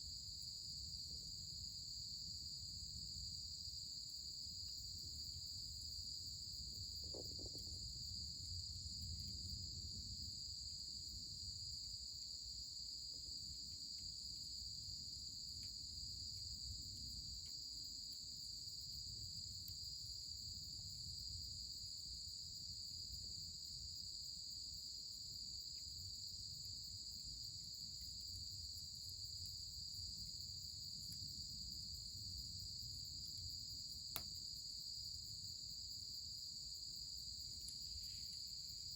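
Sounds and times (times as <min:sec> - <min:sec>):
faint ticks: 0:15.6 - 0:16.5, 0:34.1 - 0:34.4, 0:37.6 - 0:38.4.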